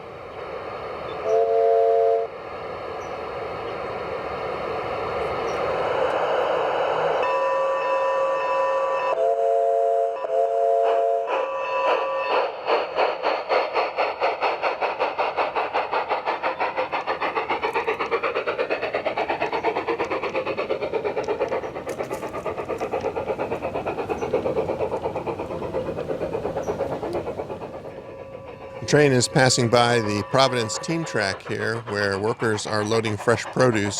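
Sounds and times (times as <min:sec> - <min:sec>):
steam locomotive chuffing: 0:00.0 - 0:33.9.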